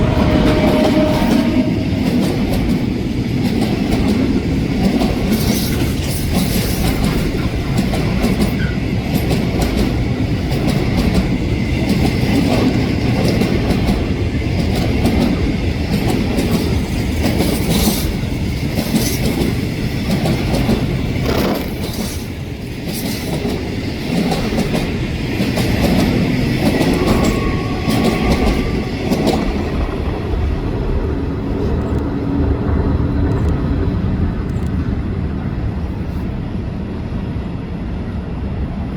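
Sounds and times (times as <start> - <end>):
clacks over rail joints: 0.0 - 29.6
train wheels rumbling on rail: 0.0 - 38.9.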